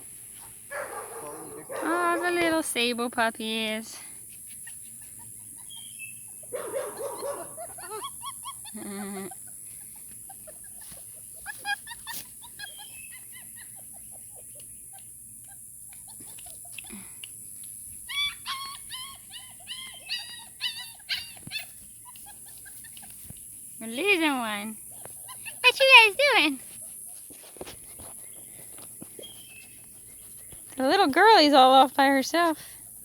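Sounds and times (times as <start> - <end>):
puppies squeaking and whimpering: 4.3 - 17.1, 18.0 - 30.7.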